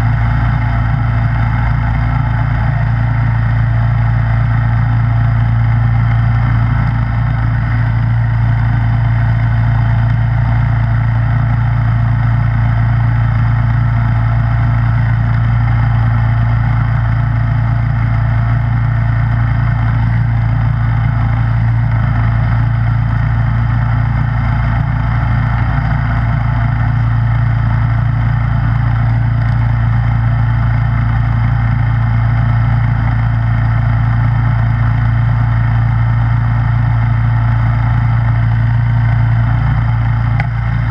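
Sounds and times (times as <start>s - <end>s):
snowblower engine running: 0.0s - 40.9s.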